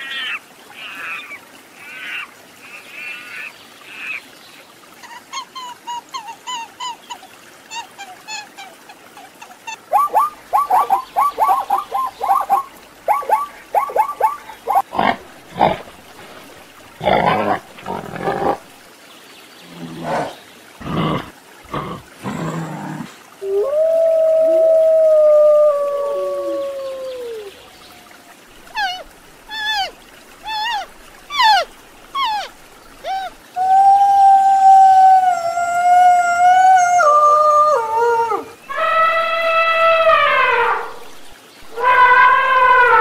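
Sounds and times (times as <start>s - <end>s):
zebras barking: 9.9s - 15.9s
short high animal calls: 38.7s - 41.1s.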